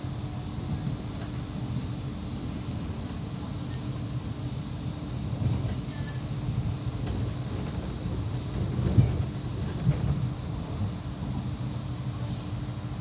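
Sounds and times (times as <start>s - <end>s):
train rumble from inside carriage: 0.0s - 13.0s
heavy train thumps: 5.3s - 10.9s.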